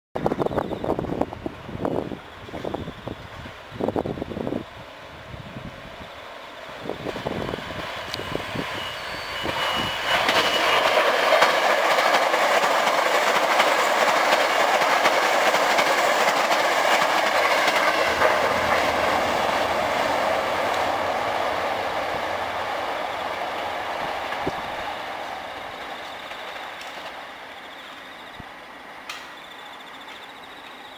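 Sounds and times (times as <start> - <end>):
electric train passing: 0.2 - 30.9
steel wheels clattering over rails: 7.8 - 27.3.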